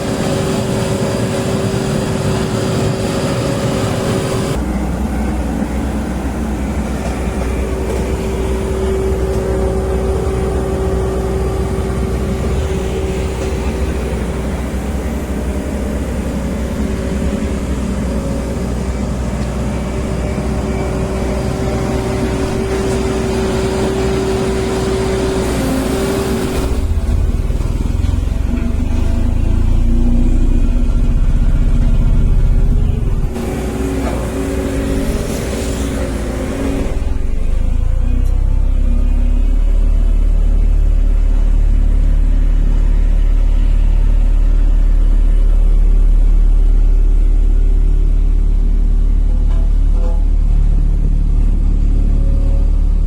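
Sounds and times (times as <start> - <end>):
diesel engine deep rumble: 0.0 - 53.0.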